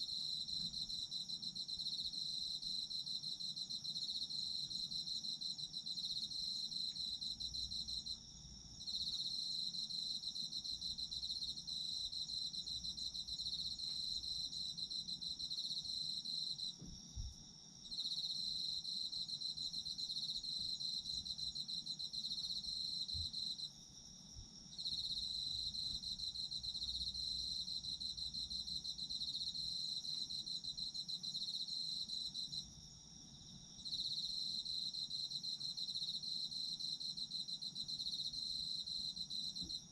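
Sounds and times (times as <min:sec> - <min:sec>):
steady high insect song: 0:00.0 - 0:39.9.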